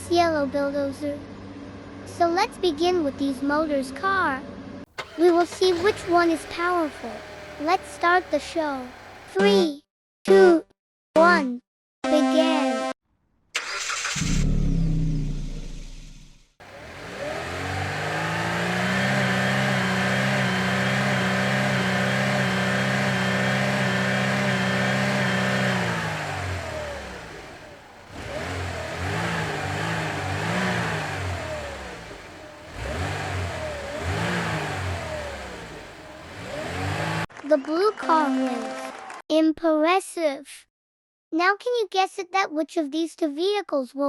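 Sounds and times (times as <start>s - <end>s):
car engine revving: 5.0s - 9.3s, 16.6s - 37.3s.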